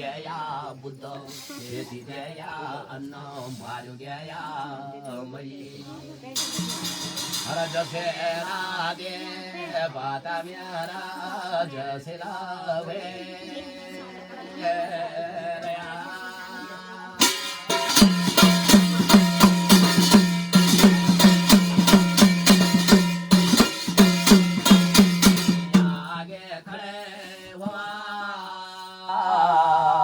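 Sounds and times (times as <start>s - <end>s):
metallic percussion strikes: 6.3s - 9.2s, 17.2s - 26.4s.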